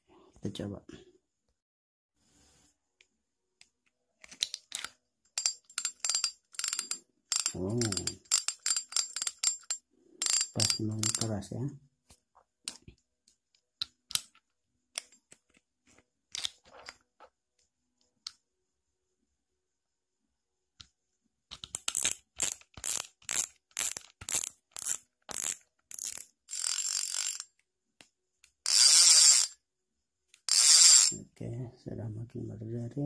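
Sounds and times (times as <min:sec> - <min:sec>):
fishing reel drag clicking: 0:06.1 - 0:09.3, 0:21.9 - 0:27.5, 0:28.7 - 0:29.5, 0:30.5 - 0:31.2.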